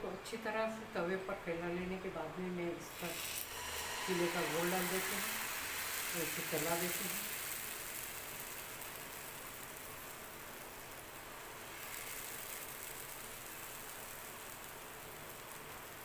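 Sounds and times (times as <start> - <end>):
batter sizzling in oil: 2.8 - 16.0.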